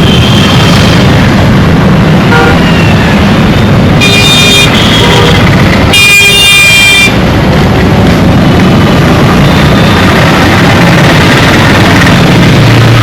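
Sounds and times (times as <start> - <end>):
road traffic rumbling: 0.0 - 13.0
vehicle horns honking: 2.3 - 2.8, 4.0 - 7.2.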